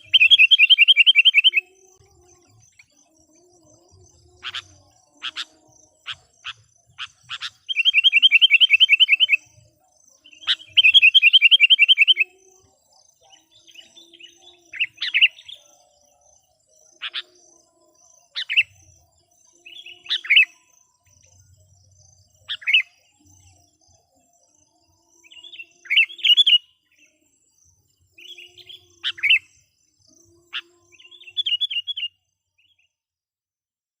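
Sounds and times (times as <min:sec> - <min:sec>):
bird trilling: 0:00.0 - 0:01.7, 0:04.3 - 0:09.4
sharp whistled bird calls: 0:00.0 - 0:01.7, 0:06.4 - 0:09.4, 0:10.4 - 0:12.3.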